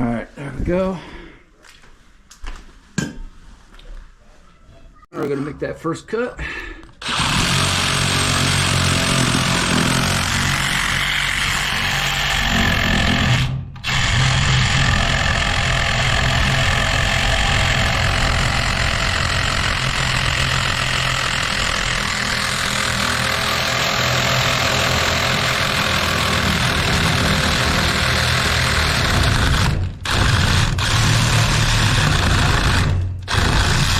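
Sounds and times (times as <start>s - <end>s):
power saw cutting steel pipe: 7.0s - 33.9s.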